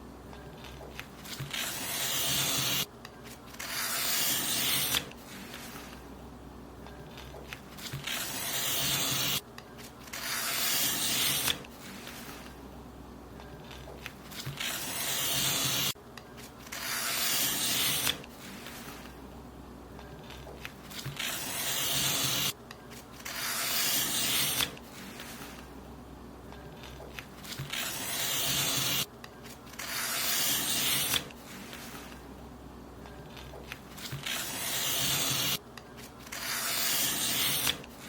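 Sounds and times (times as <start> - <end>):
paper being cut: 0.9 - 6.0, 7.1 - 9.4, 10.0 - 12.5, 13.6 - 16.0, 16.6 - 19.1, 20.2 - 22.6, 23.2 - 25.6, 26.8 - 29.1, 29.7 - 32.2, 33.3 - 38.0.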